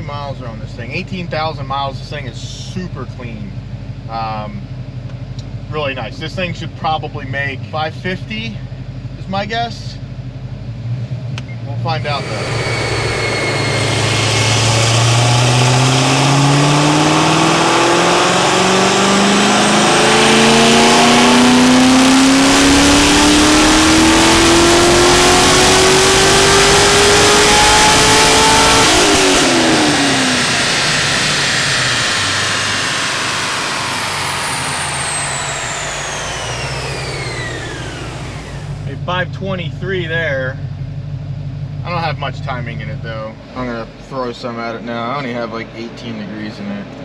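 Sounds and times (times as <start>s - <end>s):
car engine revving: 12.0s - 39.0s
rollers whining: 12.0s - 39.0s.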